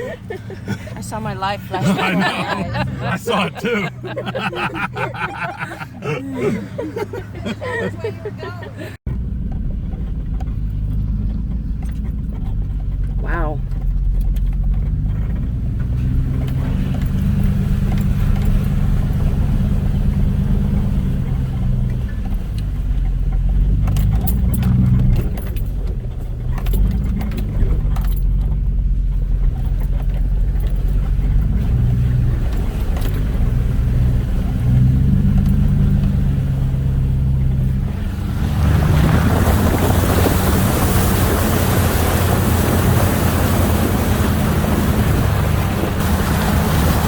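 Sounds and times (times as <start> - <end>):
off-road vehicle engine: 0.0 - 47.0
rattles and knocks from bumps: 9.1 - 19.2, 20.0 - 46.8.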